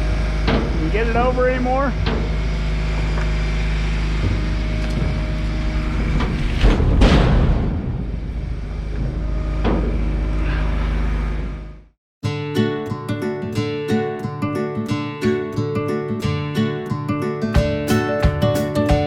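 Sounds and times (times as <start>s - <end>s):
engine running: 0.0s - 12.0s
heavy thud: 0.4s - 0.9s, 4.2s - 10.3s.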